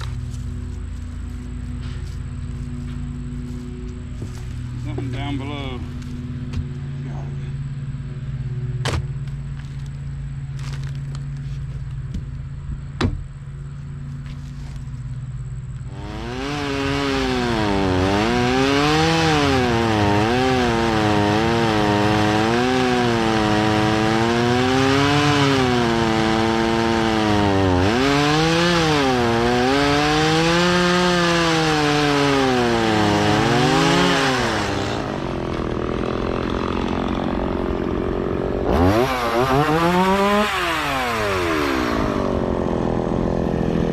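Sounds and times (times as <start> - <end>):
chainsaw cutting wood: 0.0 - 5.4, 15.8 - 43.9.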